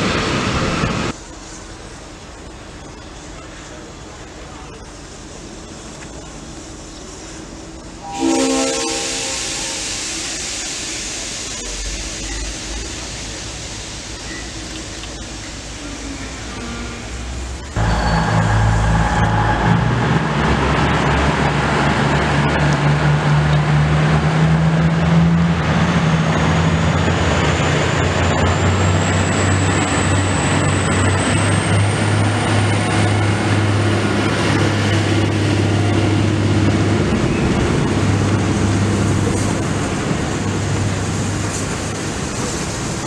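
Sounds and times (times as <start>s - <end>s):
steam train rumbling past: 0.0s - 43.0s
high squeal from running gear: 17.8s - 19.6s.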